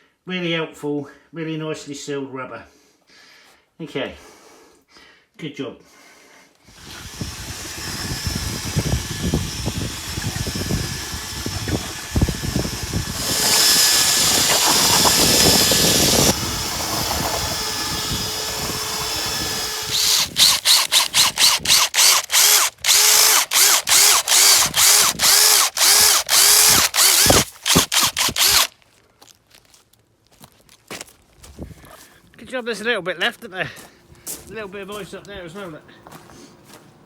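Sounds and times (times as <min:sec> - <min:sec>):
power drill running: 0:06.7 - 0:28.7.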